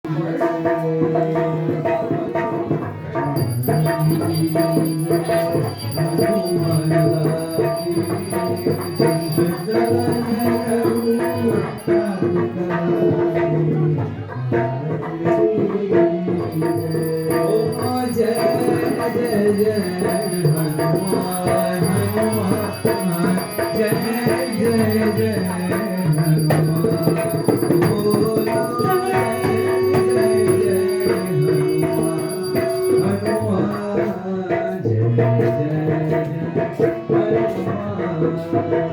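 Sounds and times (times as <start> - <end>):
hand percussion rattling and jingling: 3.3 - 12.8, 16.4 - 34.1.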